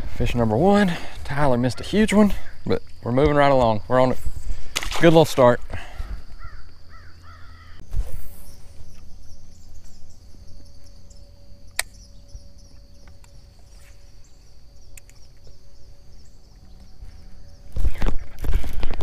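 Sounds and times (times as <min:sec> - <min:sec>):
birds calling: 0:00.0 - 0:04.8, 0:05.4 - 0:18.2
steady low hum: 0:05.6 - 0:18.9
sharp clicks: 0:11.7 - 0:12.1, 0:14.9 - 0:15.5.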